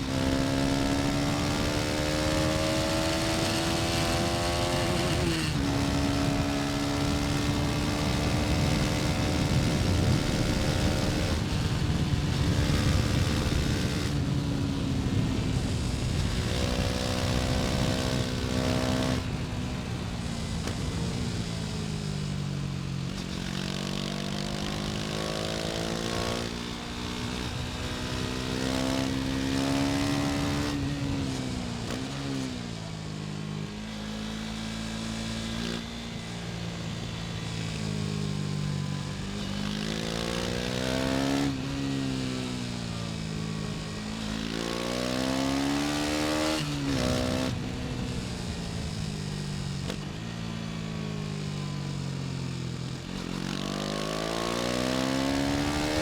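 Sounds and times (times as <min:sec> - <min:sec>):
wind noise: 0:00.0 - 0:22.2
motorcycle engine accelerating: 0:00.0 - 0:56.0.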